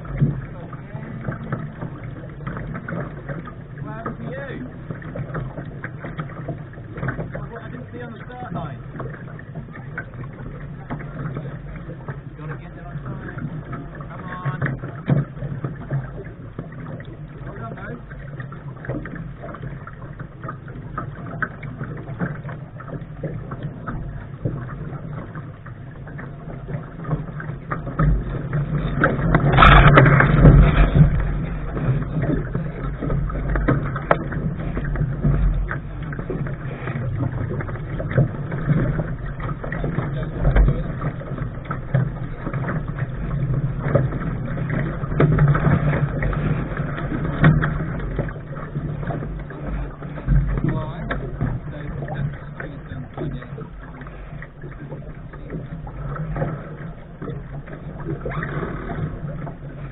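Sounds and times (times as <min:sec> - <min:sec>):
water rushing against a hull: 0:00.0 - 0:59.9
water slaps and knocks: 0:00.0 - 0:59.9
wind on microphone: 0:28.0 - 0:54.8.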